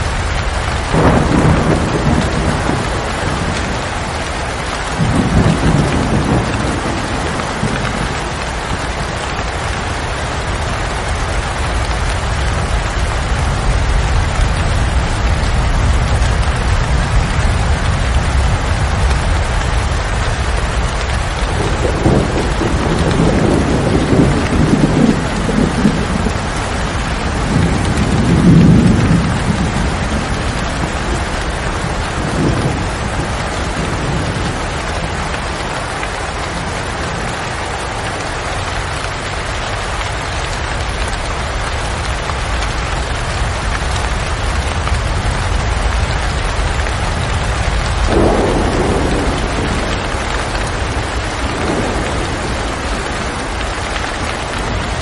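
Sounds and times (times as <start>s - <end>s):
steady rain falling: 0.0s - 55.0s
thunder rumbling: 0.0s - 55.0s.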